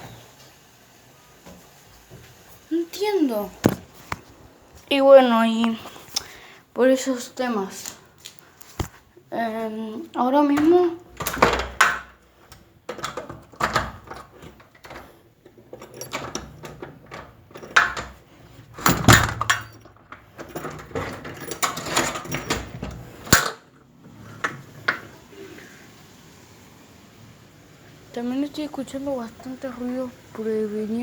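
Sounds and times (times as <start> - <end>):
hard objects knocking and clattering: 12.9 - 23.6.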